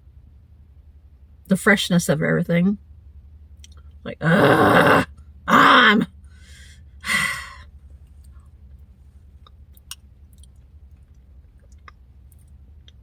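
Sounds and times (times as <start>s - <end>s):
person sighing: 4.2s - 6.0s.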